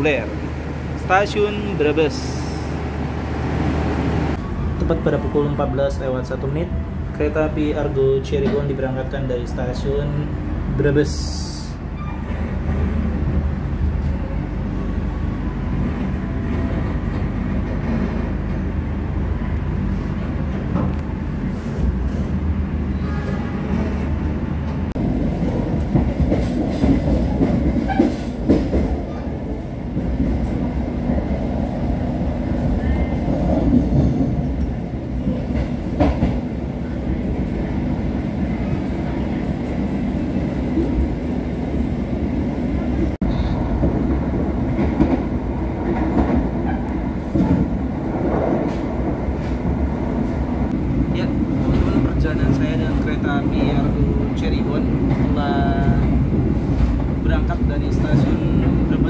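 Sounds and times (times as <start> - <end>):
train wheels rumbling on rails: 7.1 - 59.0.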